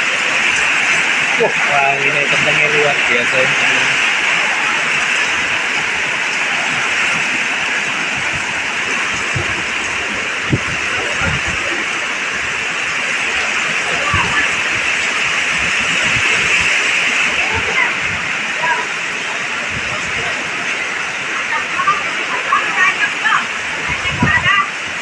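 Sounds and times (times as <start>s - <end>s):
wind buffeting microphone: 0.0s - 22.3s, 23.4s - 25.0s
heavy rain pouring: 0.0s - 25.0s.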